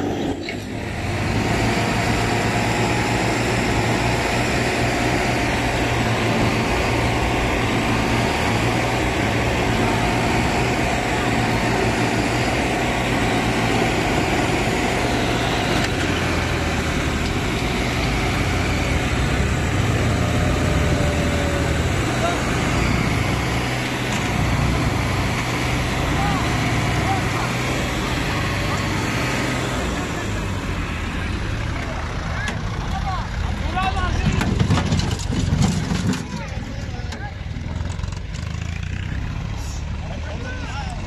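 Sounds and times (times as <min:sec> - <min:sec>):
tractor diesel engine drone: 0:00.0 - 0:41.0.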